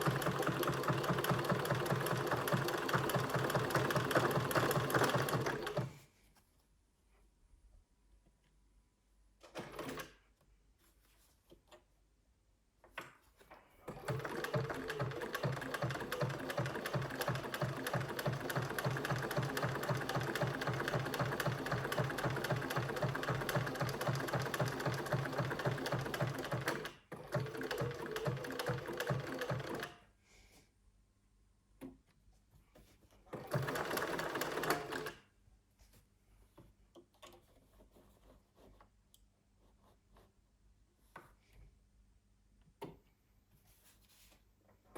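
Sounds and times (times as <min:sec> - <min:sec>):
sewing machine stitching: 0:00.0 - 0:06.0, 0:13.8 - 0:30.0, 0:33.3 - 0:35.2.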